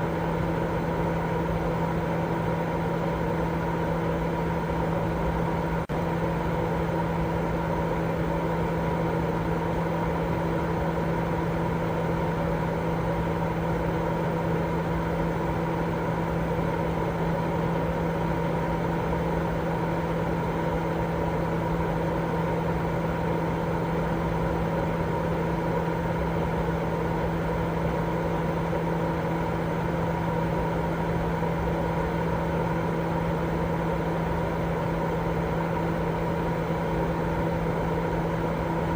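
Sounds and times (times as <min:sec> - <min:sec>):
low machine-like hum: 0:00.0 - 0:38.9
steady white noise: 0:00.0 - 0:38.9.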